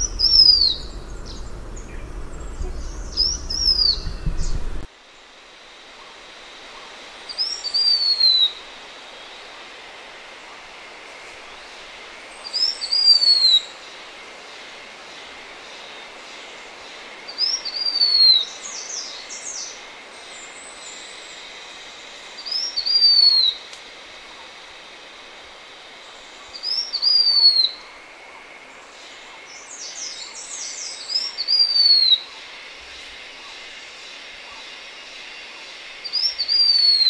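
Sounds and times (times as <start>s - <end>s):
bird singing whistled phrases: 0.0s - 4.7s, 36.1s - 37.0s
chattering bird notes: 0.0s - 4.9s
background hiss: 0.0s - 37.0s.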